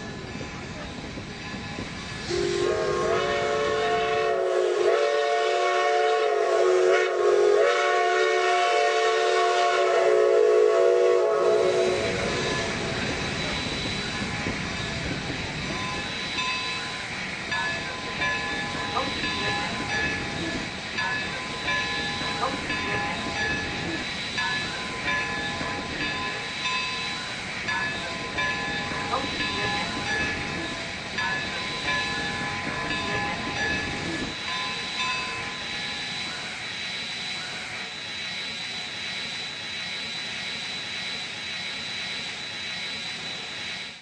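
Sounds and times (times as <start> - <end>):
train rumbling and hissing: 0.0 - 44.0
steam locomotive whistle: 2.2 - 14.3.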